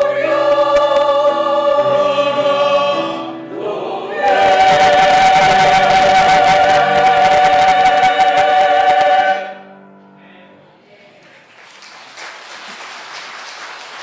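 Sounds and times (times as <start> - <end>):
choir holding a chord: 0.0 - 10.0
audience applause: 11.2 - 14.0.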